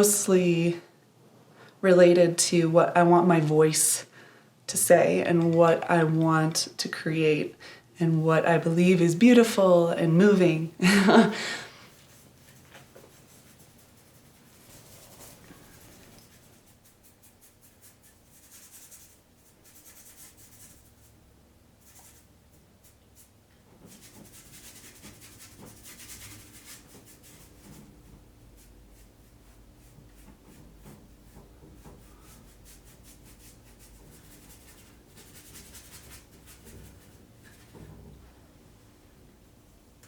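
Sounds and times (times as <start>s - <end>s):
scratching strokes on a surface: 8.8s - 38.0s.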